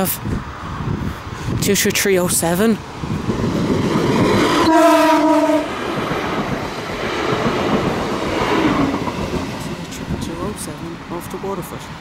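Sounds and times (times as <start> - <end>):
train rumbling past: 0.0 - 12.0
train horn blast: 4.6 - 5.8.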